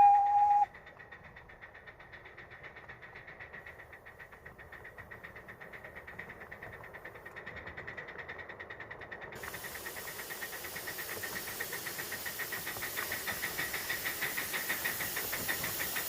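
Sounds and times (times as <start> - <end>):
steam locomotive exhaust beating: 0.0 - 16.0.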